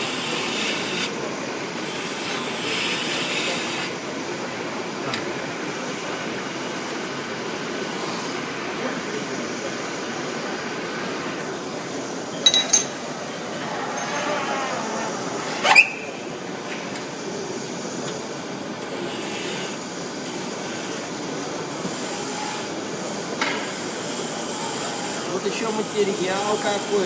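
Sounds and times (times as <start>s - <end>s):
lathe running: 17.2s - 27.0s.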